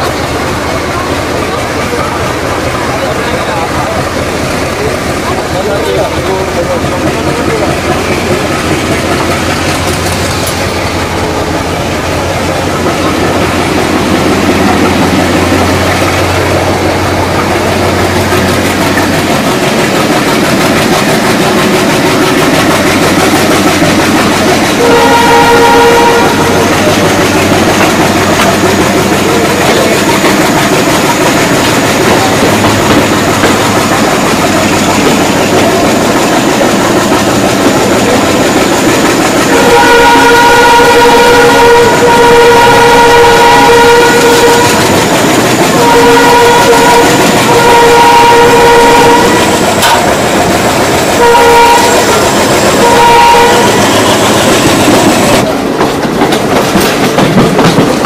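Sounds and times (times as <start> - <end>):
train wheels rumbling on rails: 0.0 - 58.0
locomotive horn blasts: 24.6 - 27.4, 39.5 - 45.1, 45.7 - 50.2, 51.1 - 54.6.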